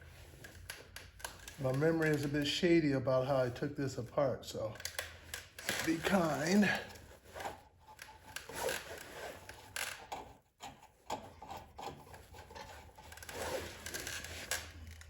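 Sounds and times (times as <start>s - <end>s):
hands rubbing and scraping parts: 4.8s - 15.0s.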